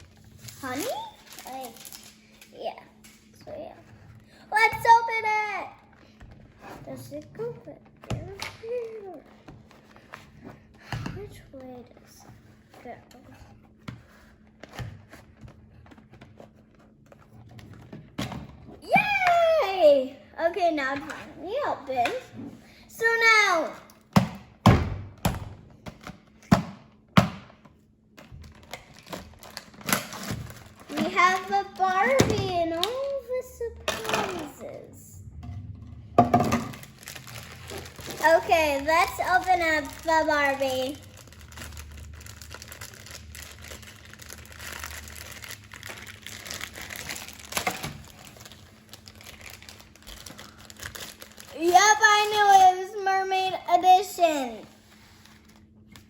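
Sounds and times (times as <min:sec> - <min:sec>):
packaging crinkling and rustling: 0:00.0 - 0:04.2, 0:28.1 - 0:34.8, 0:36.6 - 0:52.6, 0:54.8 - 0:56.0.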